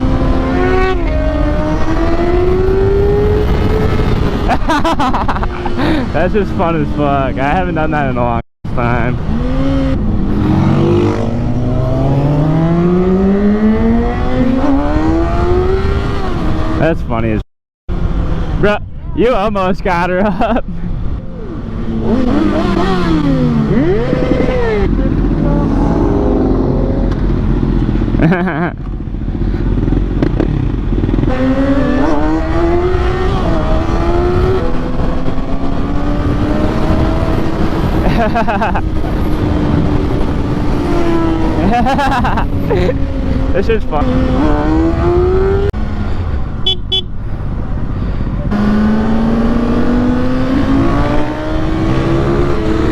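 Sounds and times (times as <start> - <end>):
wind rush: 0.0 - 7.4, 20.6 - 28.2, 29.0 - 52.9
motorcycle engine accelerating: 0.0 - 7.6, 8.8 - 17.0, 21.4 - 52.9.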